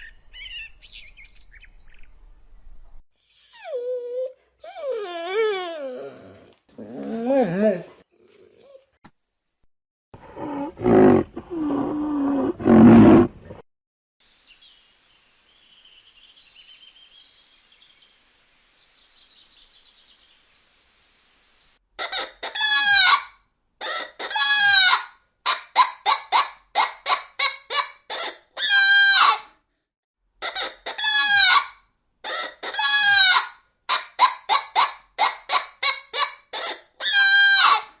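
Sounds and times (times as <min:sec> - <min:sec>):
faint high bird chirping: 0:00.0 - 0:02.2, 0:03.1 - 0:04.8.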